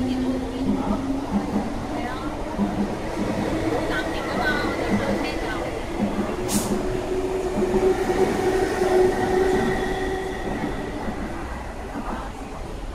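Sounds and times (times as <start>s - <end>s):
electric train wheels rumbling: 0.0s - 12.9s
train whine: 0.0s - 12.9s
brief hiss: 6.5s - 6.8s.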